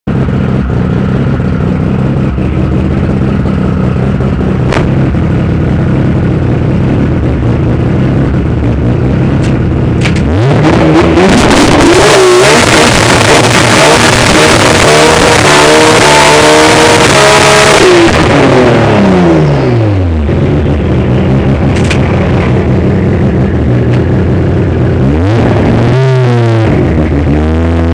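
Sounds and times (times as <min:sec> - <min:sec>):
drag racing car engine: 0:00.0 - 0:27.9.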